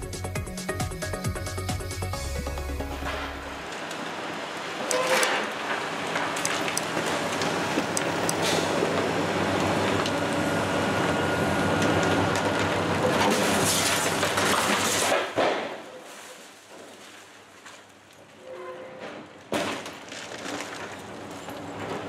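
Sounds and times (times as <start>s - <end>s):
excavator diesel engines: 0.0s - 15.2s
crash of falling debris: 12.5s - 17.9s, 19.1s - 22.0s
sharp knocks and clanks: 14.4s - 15.8s.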